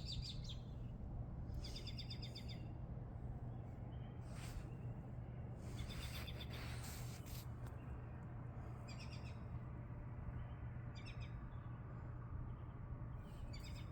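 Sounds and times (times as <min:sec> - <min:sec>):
small birds chirping: 0:00.0 - 0:09.6, 0:12.4 - 0:13.9
low background hum: 0:00.0 - 0:13.9.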